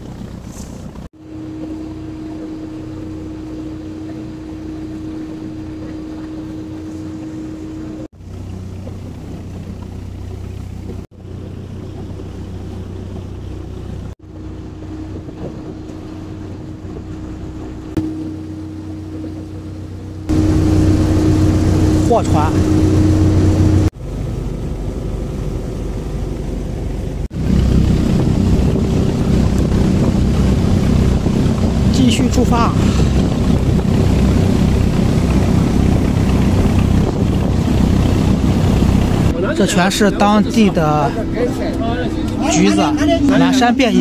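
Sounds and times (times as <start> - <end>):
boat engine droning: 0.0 - 44.0
wind and water noise: 0.0 - 44.0.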